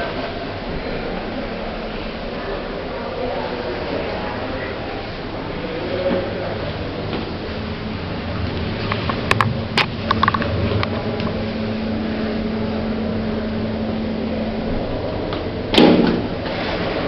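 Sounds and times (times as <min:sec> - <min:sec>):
lift machinery humming: 0:00.0 - 0:17.0
loud knock: 0:15.7 - 0:16.3.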